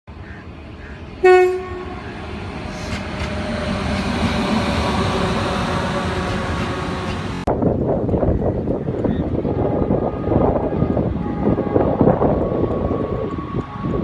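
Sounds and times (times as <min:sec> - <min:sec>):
train rumble and track noise: 0:00.1 - 0:14.0
train horn blast: 0:01.2 - 0:07.4, 0:09.5 - 0:14.0.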